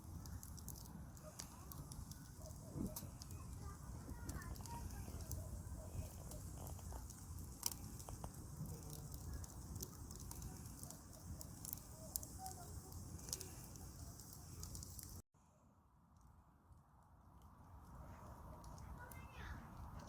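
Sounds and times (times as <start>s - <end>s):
wood fire crackling: 0.0s - 15.3s, 16.1s - 20.0s.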